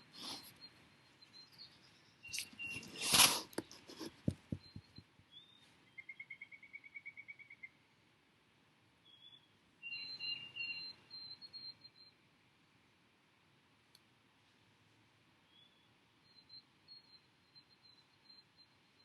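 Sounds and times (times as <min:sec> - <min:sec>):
songbirds trilling and chirping: 0:00.0 - 0:07.8, 0:09.1 - 0:12.2
soft knocks: 0:04.1 - 0:05.0.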